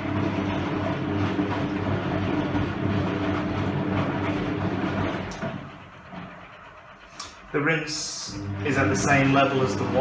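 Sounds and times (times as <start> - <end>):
washing machine drum tumbling: 0.0 - 6.7.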